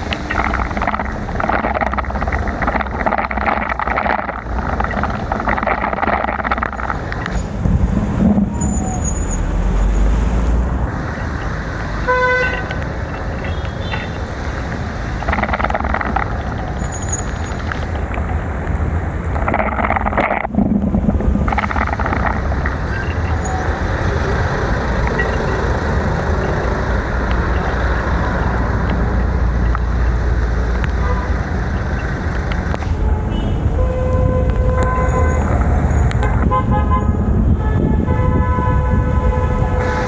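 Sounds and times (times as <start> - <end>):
wind and road noise: 0.0 - 40.0
vehicle horns honking: 12.0 - 14.2, 30.9 - 32.0, 32.9 - 40.0.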